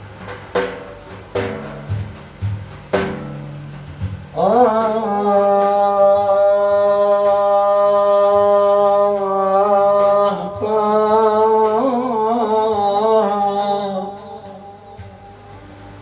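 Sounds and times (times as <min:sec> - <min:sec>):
man singing devotional chant: 0:04.4 - 0:15.4.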